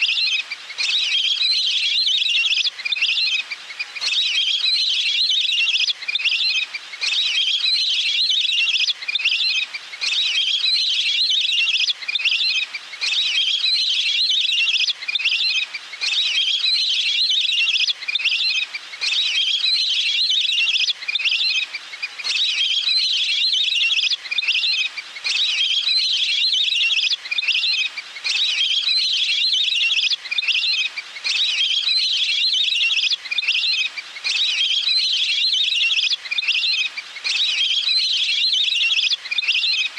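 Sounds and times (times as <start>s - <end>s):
water bird trilling call: 22.2s - 39.9s.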